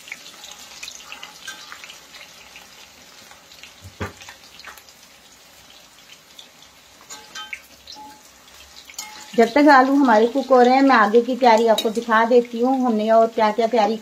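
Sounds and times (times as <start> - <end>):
potatoes sizzling in oil: 0.0 - 14.0
metal spoon scraping pan: 0.3 - 2.1, 7.1 - 8.3, 8.9 - 9.4
knock on pan: 3.8 - 4.3.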